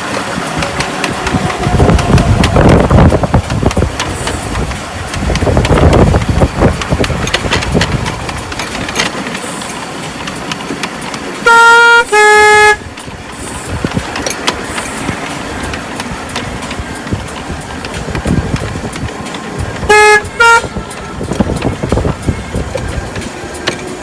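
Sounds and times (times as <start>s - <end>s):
locomotive horn: 0.0s - 5.4s, 11.4s - 15.0s, 19.5s - 24.0s
scattered knocks: 0.0s - 11.5s, 12.9s - 24.0s
engine running: 0.0s - 24.0s.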